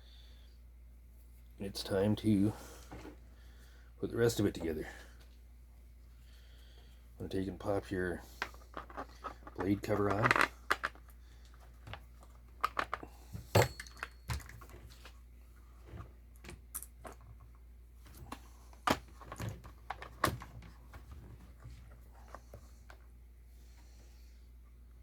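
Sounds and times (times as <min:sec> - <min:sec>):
plastic cover clicks and clunks: 0:18.1 - 0:21.1.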